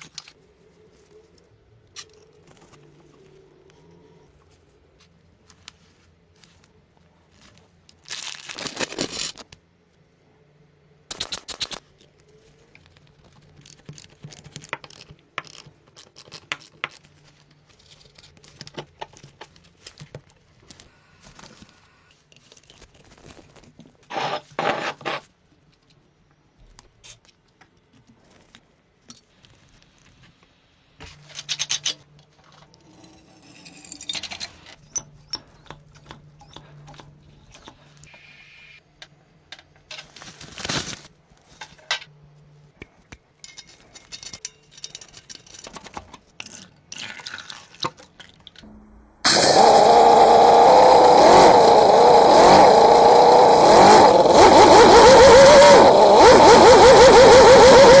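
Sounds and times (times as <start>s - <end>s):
small metal parts clicking: 43.4s - 46.7s
model engine running: 49.2s - 58.0s.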